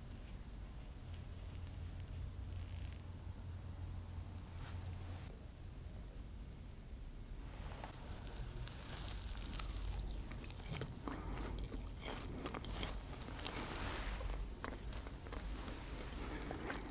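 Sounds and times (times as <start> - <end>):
low steady hum: 0.0 - 16.9
person chewing: 8.2 - 16.9.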